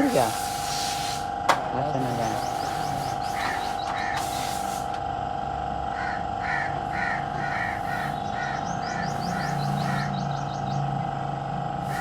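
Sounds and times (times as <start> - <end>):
steady mechanical hum: 0.0 - 12.0
small birds chirping: 1.7 - 4.6, 7.5 - 11.2
bird trill: 6.0 - 10.9.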